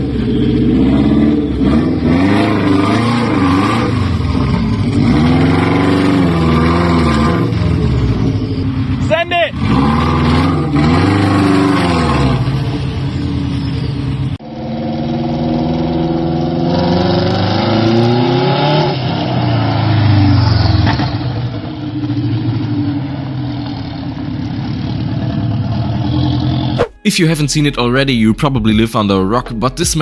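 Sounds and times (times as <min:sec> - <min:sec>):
car engine revving hard: 0:00.0 - 0:13.8, 0:14.5 - 0:22.2.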